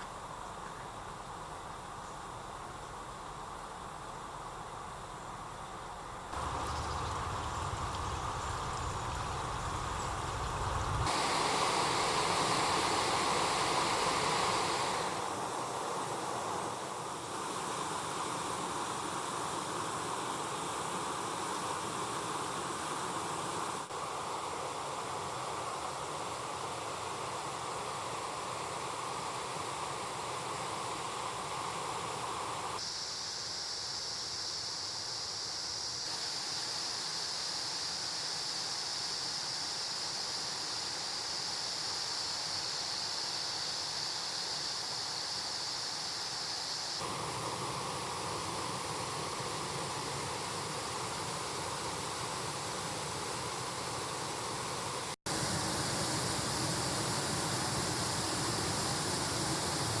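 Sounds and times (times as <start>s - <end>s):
high hiss: 0.0s - 60.0s
mountain stream rushing: 6.3s - 32.8s, 46.7s - 60.0s.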